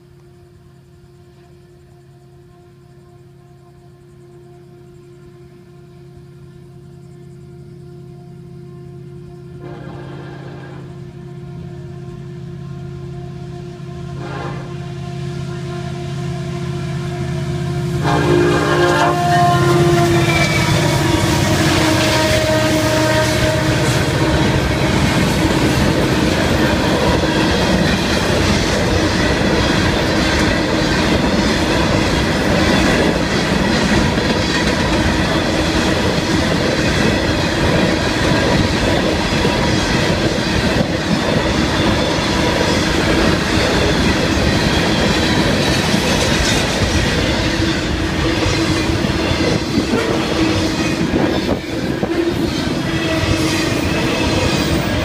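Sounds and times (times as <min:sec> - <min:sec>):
steady wheel squeal: 0:19.6 - 0:24.0
train wheels clattering over rail joints: 0:20.2 - 0:55.0.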